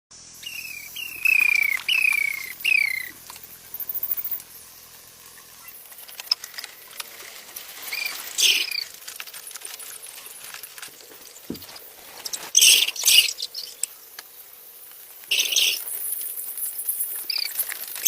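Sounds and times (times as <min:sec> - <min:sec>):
baby chicks peeping: 0:00.4 - 0:03.2, 0:12.2 - 0:13.9, 0:15.3 - 0:15.9.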